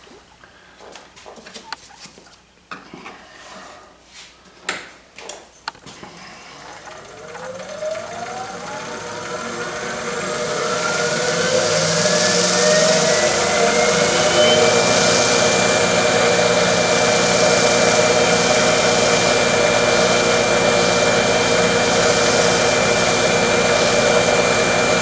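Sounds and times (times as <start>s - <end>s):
lathe motor whine rising: 6.8s - 25.0s.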